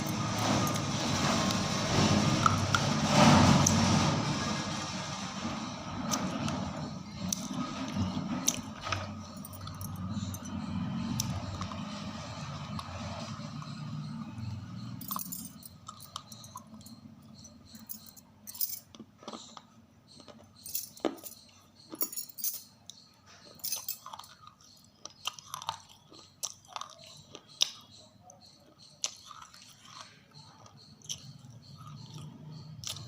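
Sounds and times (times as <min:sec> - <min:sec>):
person chewing something brittle: 0:22.9 - 0:33.0.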